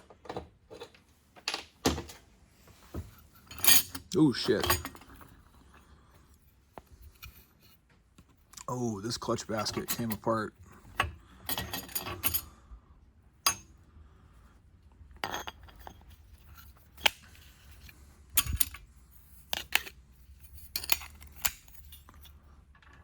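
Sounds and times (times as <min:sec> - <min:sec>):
metal parts clinking: 0:03.3 - 0:05.4, 0:09.4 - 0:12.5, 0:15.2 - 0:23.0.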